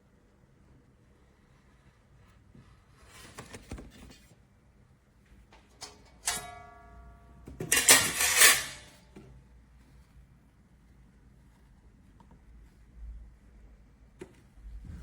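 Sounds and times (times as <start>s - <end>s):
cookware clattering scrape: 7.6s - 9.0s.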